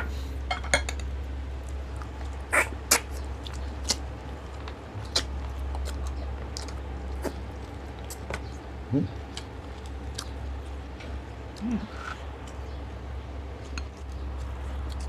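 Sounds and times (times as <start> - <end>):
wet lip smacks and chewing: 1.6 - 8.6, 9.2 - 10.8.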